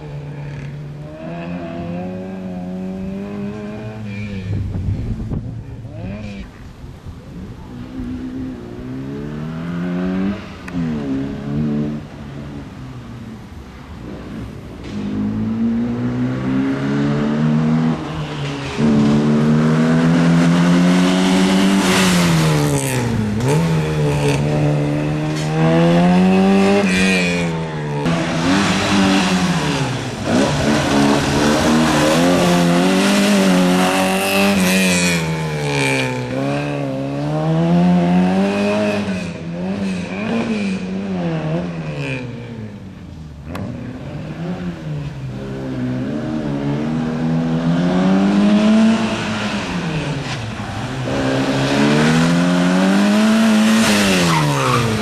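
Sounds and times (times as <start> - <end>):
small car engine revving: 18.8 - 42.6, 43.5 - 55.0.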